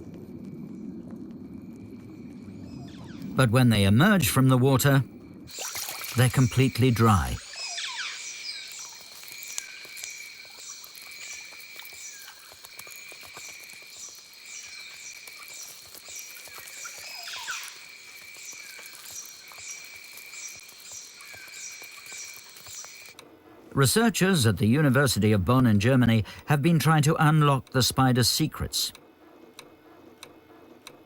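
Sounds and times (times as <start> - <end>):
falling whistled call: 7.3 - 12.4.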